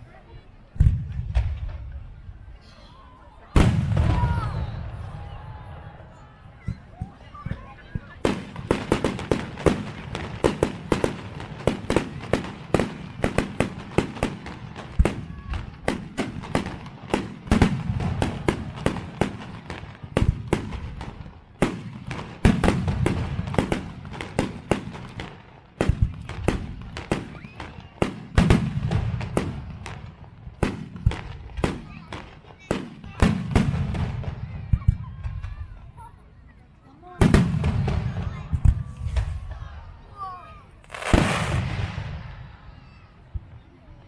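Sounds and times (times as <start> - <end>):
fireworks bangs and crackles: 0.3 - 2.8, 3.4 - 36.4, 37.0 - 44.0.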